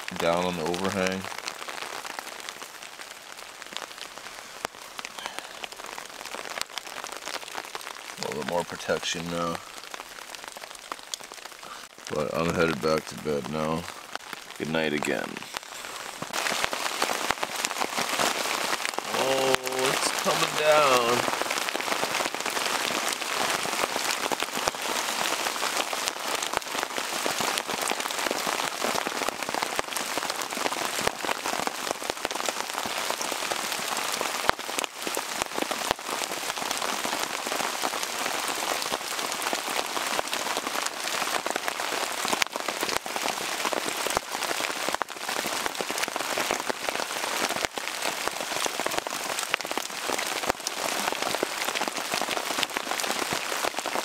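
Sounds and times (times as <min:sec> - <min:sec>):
heavy rain on canvas tarp: 0:00.0 - 0:54.0.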